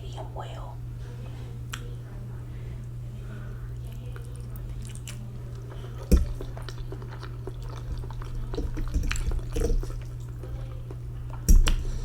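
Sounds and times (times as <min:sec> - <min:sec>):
wet chewing and mouth sounds: 0:03.7 - 0:12.0.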